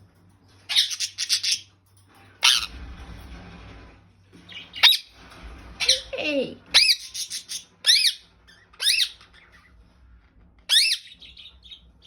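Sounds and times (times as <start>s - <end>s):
parakeet squawking: 0.7s - 1.7s, 2.4s - 2.8s, 4.5s - 5.1s, 6.7s - 9.8s, 10.7s - 12.0s.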